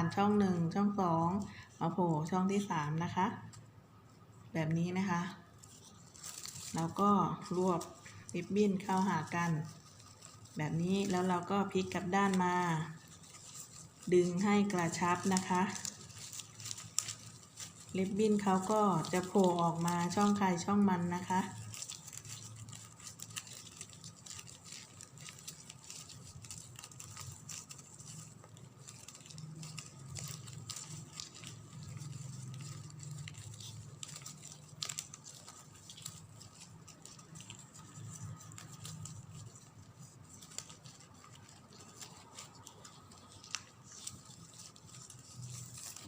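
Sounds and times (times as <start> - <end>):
ribbon rustling in fingers: 0.0 - 46.0.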